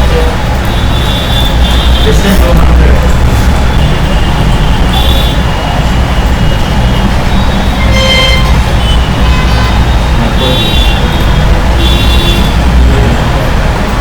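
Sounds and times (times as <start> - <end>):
road traffic rumble: 0.0 - 14.0
vehicle horn toots: 0.7 - 2.2, 3.7 - 5.7, 6.9 - 12.7.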